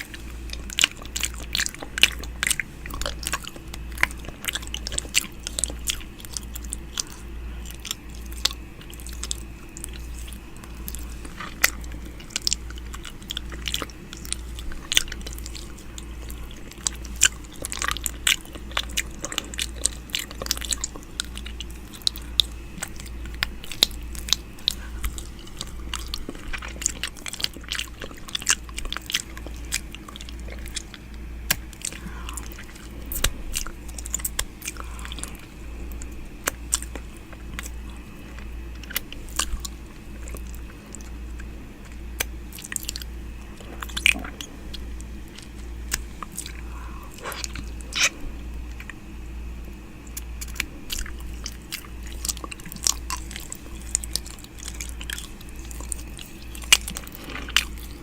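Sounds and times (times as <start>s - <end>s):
low hum: 0.0s - 58.0s
wet mouth clicks and smacks: 16.5s - 49.0s.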